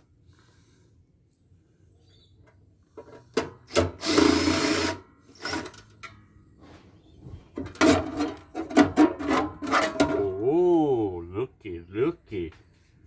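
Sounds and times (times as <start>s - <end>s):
knocks and clatter of parts: 7.5s - 10.4s
scraping rasp: 7.8s - 10.3s.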